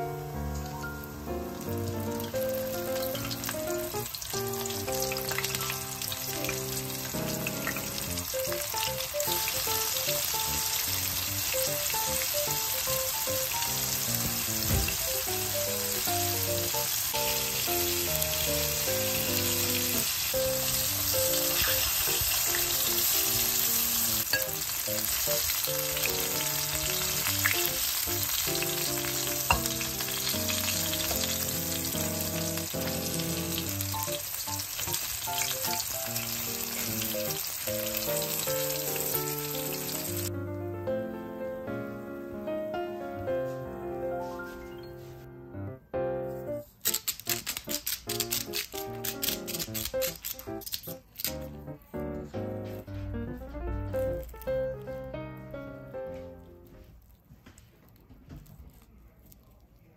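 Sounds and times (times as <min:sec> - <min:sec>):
light background music: 0:00.0 - 0:56.8
fish sizzling in hot oil: 0:00.3 - 0:40.3, 0:46.9 - 0:50.8.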